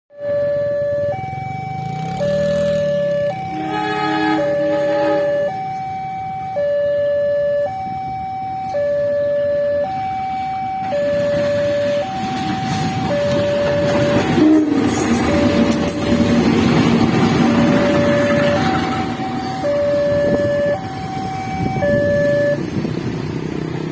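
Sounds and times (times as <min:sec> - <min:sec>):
level-crossing alarm two-tone: 0:00.1 - 0:16.6, 0:17.4 - 0:22.7
short horn: 0:03.5 - 0:05.5
train rumble: 0:10.4 - 0:23.9.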